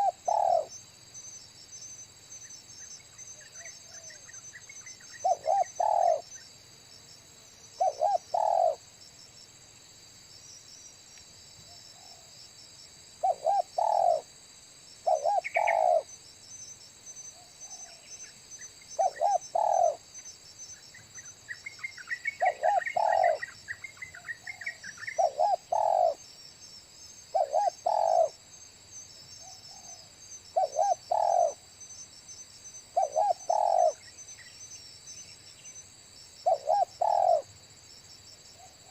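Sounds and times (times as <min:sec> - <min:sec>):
dove cooing: 0:00.0 - 0:00.8, 0:05.2 - 0:06.3, 0:07.8 - 0:08.8, 0:13.2 - 0:14.3, 0:15.0 - 0:16.1, 0:19.0 - 0:20.0, 0:22.3 - 0:26.2, 0:27.3 - 0:28.4, 0:30.6 - 0:31.6, 0:33.0 - 0:34.0, 0:36.4 - 0:37.5
high insect trill: 0:00.0 - 0:38.9.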